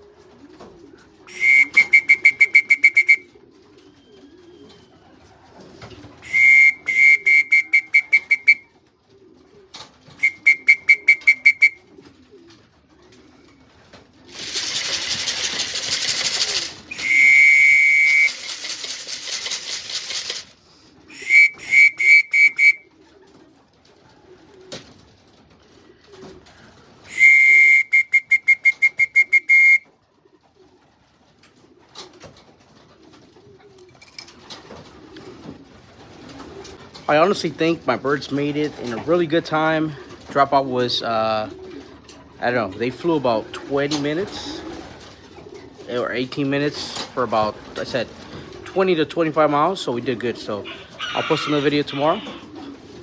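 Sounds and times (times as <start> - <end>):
pigeons cooing: 0.0 - 53.0
trilling whistle: 1.3 - 3.3, 6.2 - 8.7, 10.2 - 11.8, 16.8 - 18.5, 21.1 - 22.8, 27.1 - 29.8.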